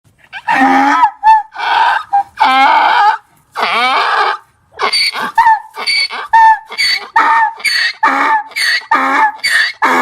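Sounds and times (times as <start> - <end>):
donkey braying: 0.2 - 10.0.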